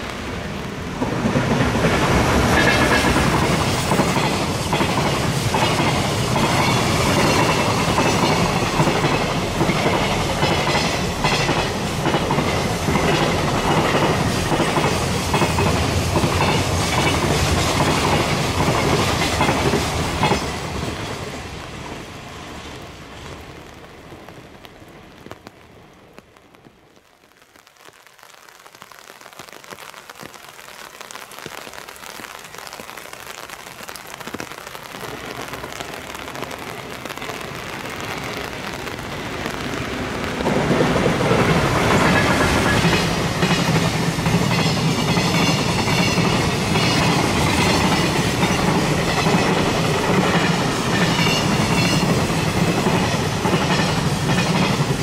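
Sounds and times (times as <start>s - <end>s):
heavy rain hiss: 0.0s - 55.0s
locomotive passing: 36.5s - 55.0s.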